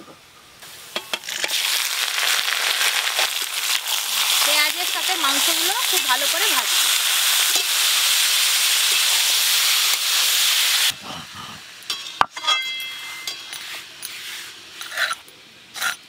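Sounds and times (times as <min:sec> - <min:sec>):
chicken sizzling in ghee: 0:00.6 - 0:12.1, 0:13.1 - 0:16.0
stirring with metal clinks: 0:11.9 - 0:14.2.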